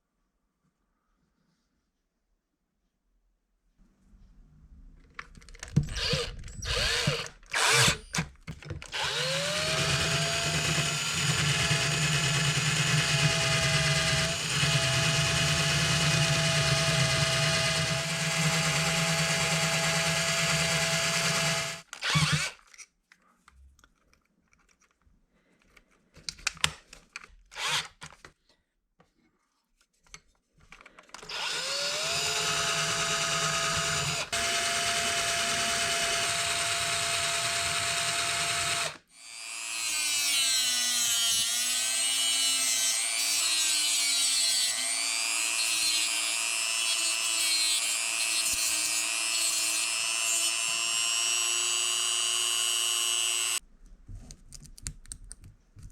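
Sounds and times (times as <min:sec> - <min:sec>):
rotary tool motor whining: 0:05.6 - 0:08.2, 0:08.9 - 0:22.6, 0:27.6 - 0:27.9, 0:31.3 - 0:39.7, 0:47.8 - 0:53.6.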